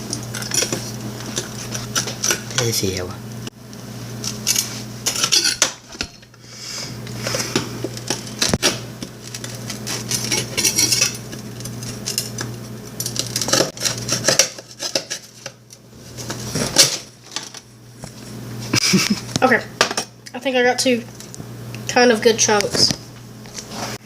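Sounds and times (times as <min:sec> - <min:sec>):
utensils scraping on a plate: 0:04.4 - 0:06.3, 0:09.3 - 0:12.5.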